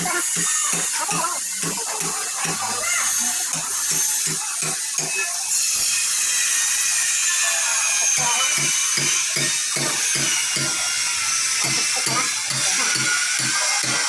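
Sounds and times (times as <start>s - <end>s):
angle grinder whining: 0.0s - 14.0s.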